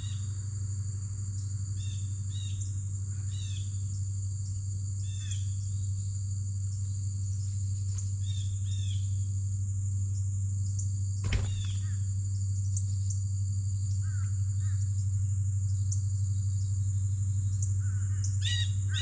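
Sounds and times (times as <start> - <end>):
constant low hum: 0.0 - 19.0
crickets trilling: 0.0 - 19.0
sharp knock: 11.2 - 11.9.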